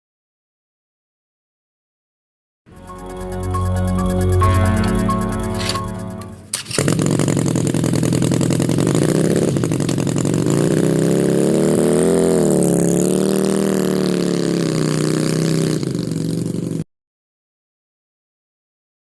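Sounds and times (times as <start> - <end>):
engine buzzing drone: 2.7 - 16.8.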